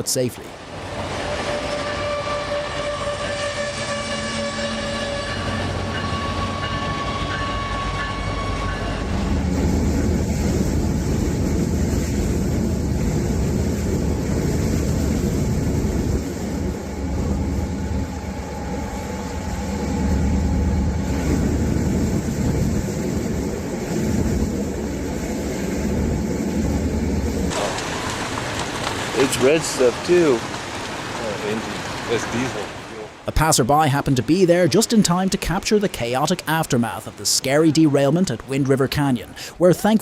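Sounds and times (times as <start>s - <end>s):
train rumbling on rails: 0.5s - 33.2s
train horn: 1.3s - 9.3s.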